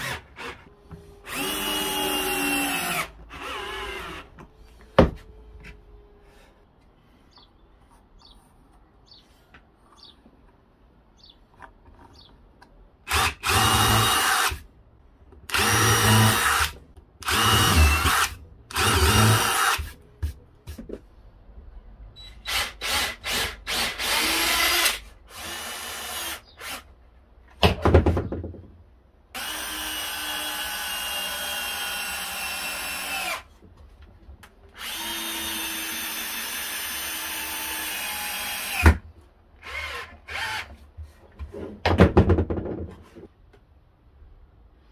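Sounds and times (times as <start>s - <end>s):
power drill running: 1.2s - 4.3s, 13.1s - 14.6s, 15.5s - 19.9s, 29.4s - 33.5s, 34.8s - 38.8s.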